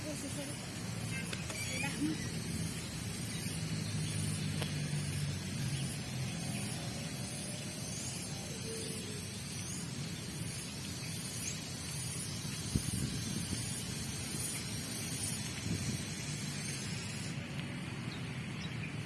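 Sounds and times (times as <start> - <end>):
low traffic hum: 0.0 - 19.0
outdoor hiss: 0.0 - 19.0.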